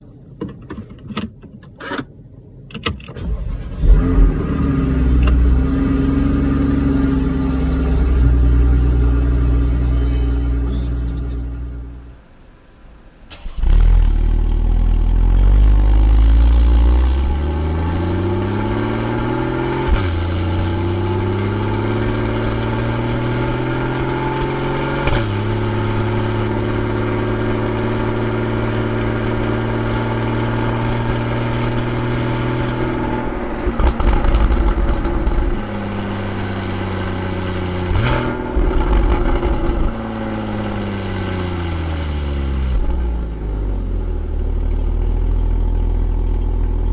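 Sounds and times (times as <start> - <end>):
car engine accelerating: 3.0 - 46.9
engine rev blip: 9.7 - 26.6.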